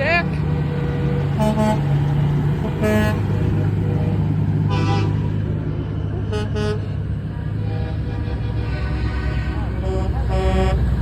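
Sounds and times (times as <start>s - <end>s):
truck engines rumbling: 0.0s - 11.0s
truck horn toots: 1.4s - 1.9s, 2.6s - 3.3s, 4.7s - 5.3s, 6.2s - 7.0s, 7.6s - 10.9s.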